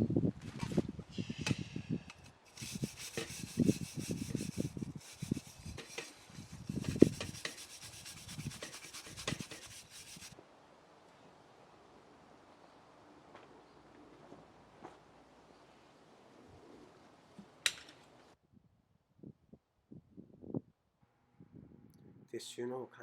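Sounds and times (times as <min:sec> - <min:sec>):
camp gear rubbing and scraping: 0:02.1 - 0:10.4
rustling: 0:02.2 - 0:10.4.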